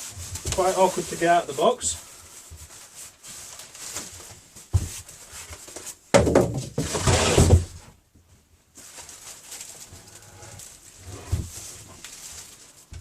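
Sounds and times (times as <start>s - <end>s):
cardboard scraping and rubbing: 0.0s - 1.8s, 6.8s - 7.8s, 8.8s - 13.0s.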